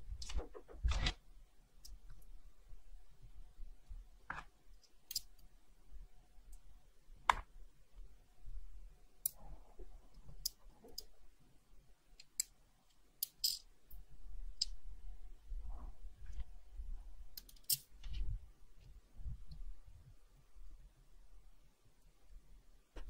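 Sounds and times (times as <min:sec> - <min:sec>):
small tools clicking and tapping: 0:12.2 - 0:13.7, 0:17.4 - 0:17.9.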